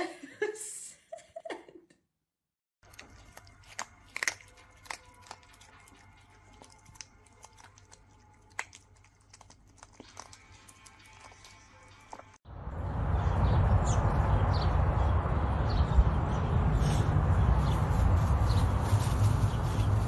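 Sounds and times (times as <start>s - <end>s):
faint music: 3.0s - 12.4s.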